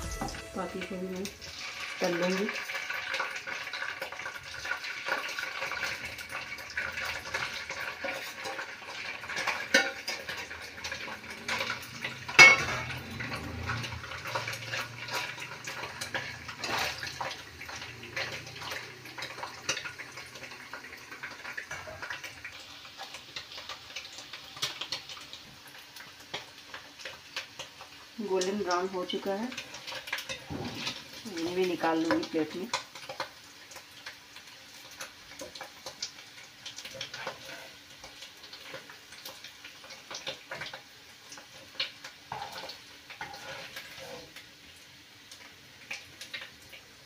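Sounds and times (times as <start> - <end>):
paneer sizzling in hot oil: 0.0 - 47.0
spoon clinking and scraping pan: 9.3 - 10.4, 11.5 - 13.0, 42.3 - 44.3.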